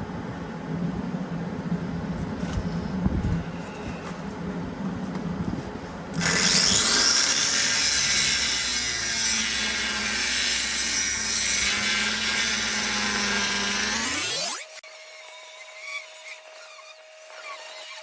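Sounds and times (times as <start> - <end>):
angle grinder grinding steel: 6.2 - 18.0.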